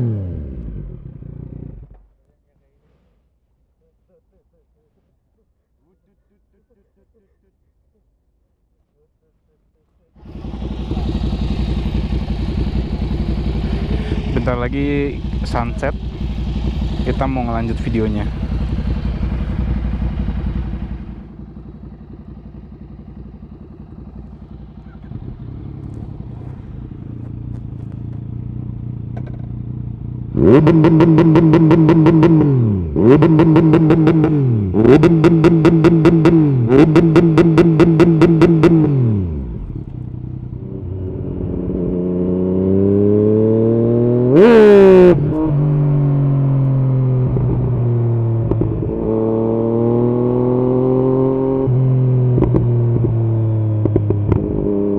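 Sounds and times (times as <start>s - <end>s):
motorcycle engine revving: 0.0s - 2.1s, 10.2s - 54.9s.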